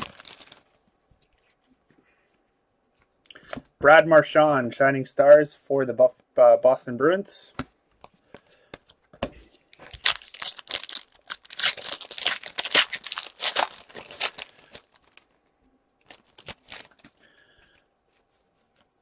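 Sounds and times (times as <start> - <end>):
foil pack tearing and crinkling: 0.0 - 0.8, 9.8 - 15.3, 16.0 - 17.2.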